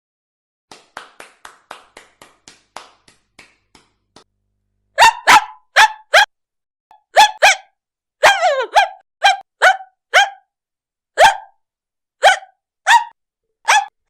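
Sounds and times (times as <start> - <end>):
woman imitating dog barks: 5.0 - 6.3, 7.0 - 10.4, 11.2 - 11.5, 12.2 - 13.1, 13.7 - 13.9.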